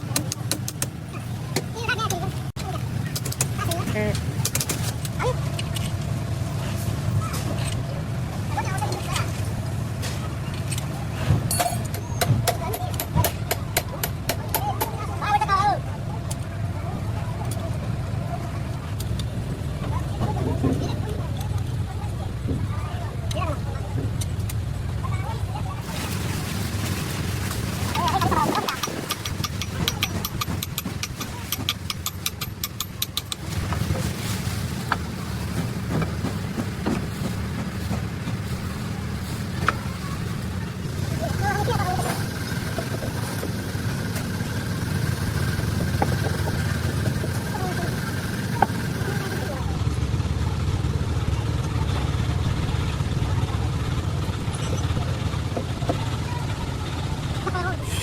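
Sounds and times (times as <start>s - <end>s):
low mechanical hum: 0.0s - 58.0s
engine idling: 20.9s - 58.0s.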